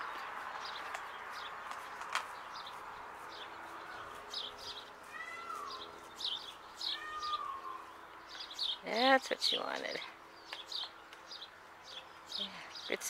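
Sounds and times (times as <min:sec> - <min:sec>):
longer falling bird calls: 0:00.0 - 0:08.8
small birds chirping: 0:00.0 - 0:13.0.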